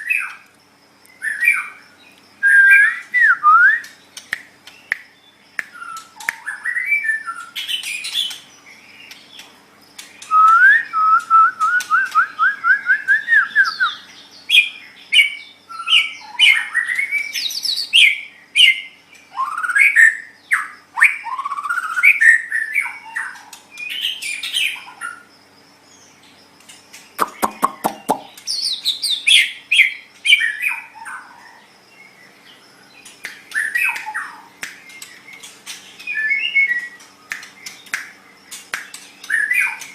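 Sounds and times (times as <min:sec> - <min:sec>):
bird singing whistled phrases: 0:02.4 - 0:04.0, 0:04.8 - 0:08.4, 0:10.2 - 0:24.8, 0:36.0 - 0:37.8
bird's harsh clicking rattle: 0:03.9 - 0:06.5, 0:26.6 - 0:28.7, 0:33.0 - 0:36.2, 0:36.8 - 0:39.9.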